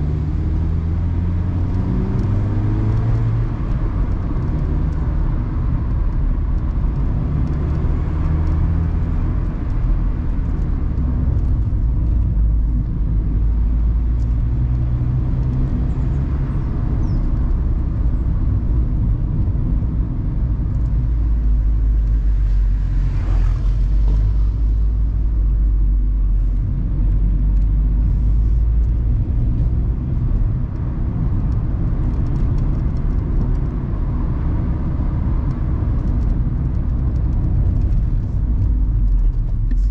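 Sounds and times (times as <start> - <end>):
car engine running: 0.0 - 39.9
road noise: 0.0 - 39.9.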